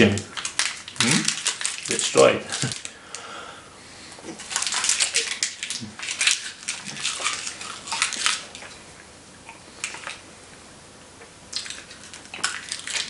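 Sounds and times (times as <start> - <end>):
hard candy crunching in mouth: 0.0 - 3.2, 4.2 - 8.8, 11.5 - 13.0.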